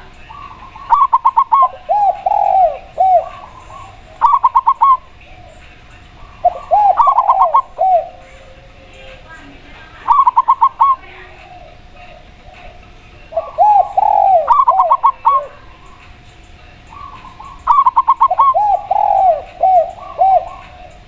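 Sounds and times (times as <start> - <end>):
low arched dove coos: 0.0 - 21.0
short high dove coos: 6.3 - 9.3, 13.4 - 15.9, 16.9 - 21.0.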